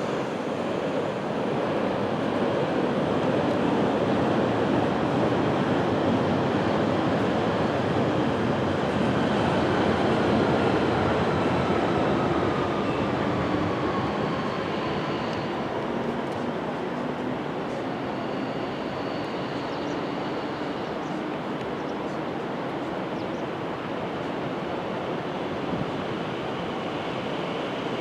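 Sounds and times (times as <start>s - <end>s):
train rumbling on track: 0.0s - 28.0s
faint whine: 17.6s - 21.2s.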